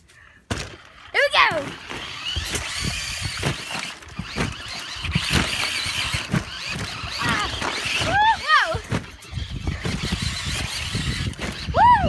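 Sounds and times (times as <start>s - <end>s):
tyre noise on pavement: 0.4s - 12.0s
rc truck motor whine: 0.5s - 12.0s.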